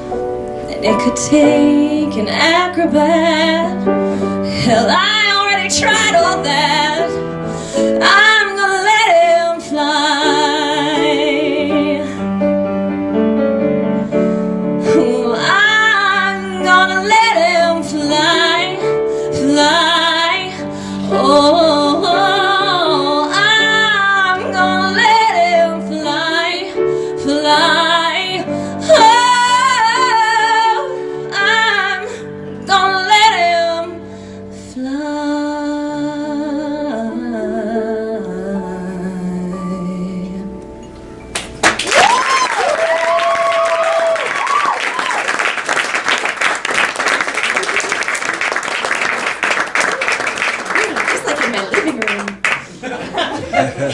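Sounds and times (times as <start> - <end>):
piano accompaniment: 0.0 - 53.9
woman singing: 0.7 - 12.2, 14.8 - 34.1, 34.7 - 40.7.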